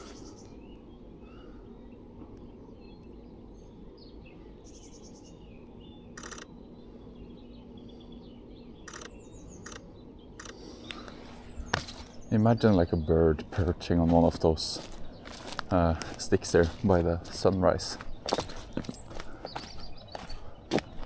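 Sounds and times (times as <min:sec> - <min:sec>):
faint songbird chirps: 0:00.0 - 0:21.0
outdoor background noise: 0:00.0 - 0:21.0
camera shutter clicks: 0:06.2 - 0:06.5.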